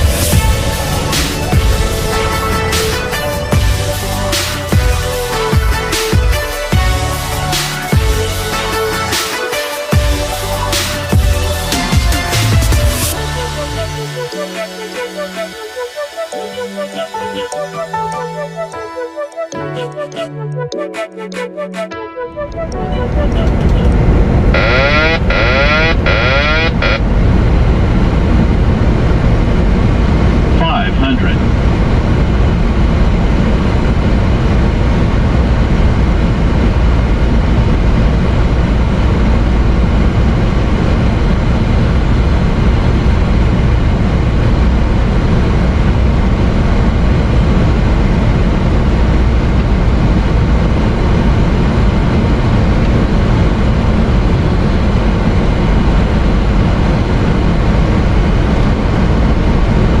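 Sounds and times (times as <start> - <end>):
airplane cabin rumble: 22.6 - 60.0.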